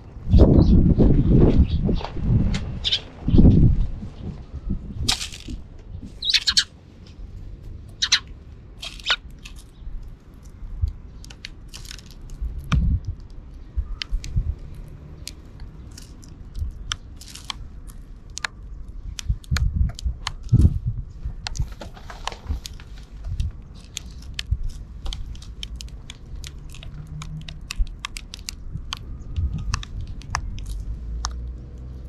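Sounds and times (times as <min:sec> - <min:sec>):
sparrows chirping: 0:00.2 - 0:02.1, 0:02.7 - 0:06.7, 0:07.9 - 0:12.0
birds pecking at seed: 0:05.0 - 0:32.0.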